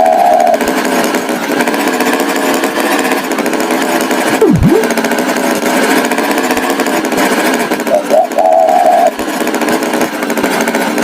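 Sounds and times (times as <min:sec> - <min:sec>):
swooping tone: 0:04.4 - 0:05.0
cartoon tractor engine buzz: 0:04.4 - 0:05.5.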